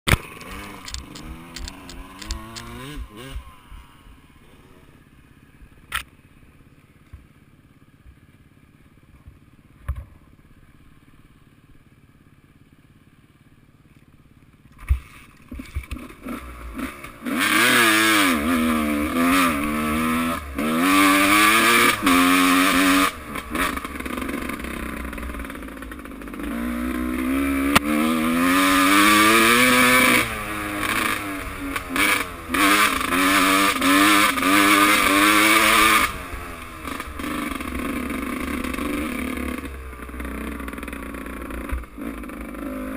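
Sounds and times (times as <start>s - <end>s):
motocross bike engines revving: 0.1s - 6.0s, 15.5s - 42.9s.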